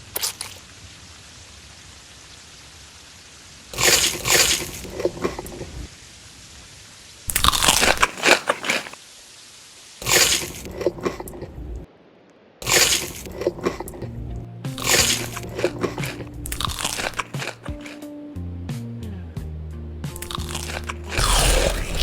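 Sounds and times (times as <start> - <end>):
crunchy chewing: 3.8 - 5.8, 7.3 - 9.0, 10.0 - 11.5, 12.6 - 18.0, 20.2 - 22.0.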